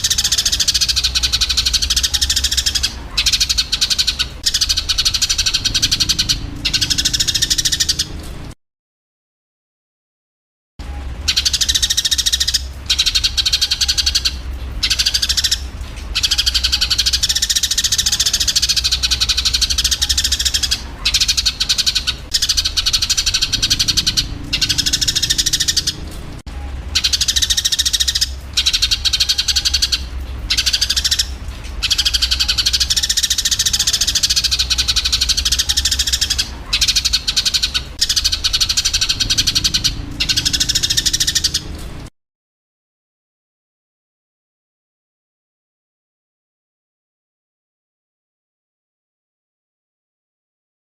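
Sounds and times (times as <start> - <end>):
sparrows chirping harshly: 0.0 - 8.6, 10.8 - 42.1
steady low hum: 0.0 - 8.6, 10.8 - 42.1.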